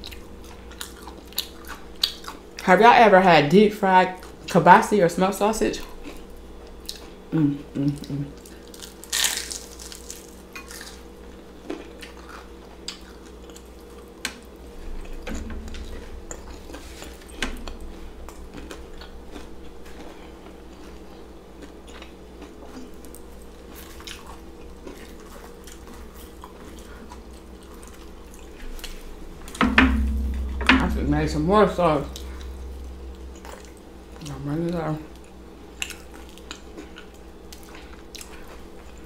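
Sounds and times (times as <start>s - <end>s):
biting and chewing food: 0.0s - 2.6s, 8.0s - 30.5s.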